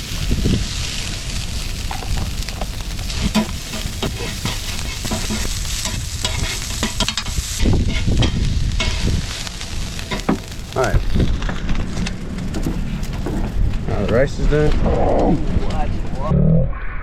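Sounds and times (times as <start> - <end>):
food sizzling in a pan: 0.0 - 11.3.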